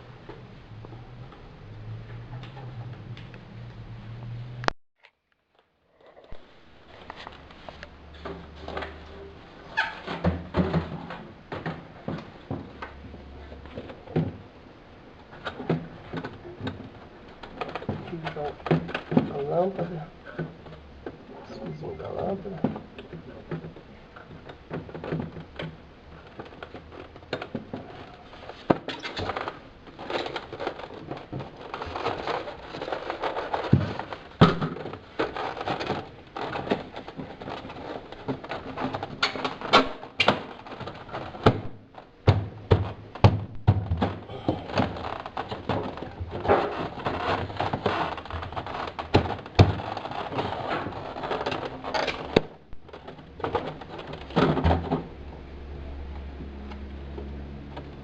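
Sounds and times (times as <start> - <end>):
plastic fridge parts clicking: 7.0 - 58.0.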